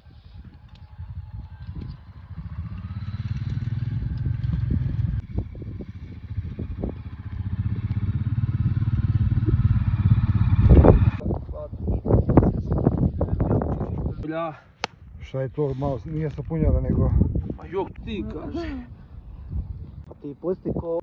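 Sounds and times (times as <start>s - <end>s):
motorcycle engine running: 0.3s - 11.2s.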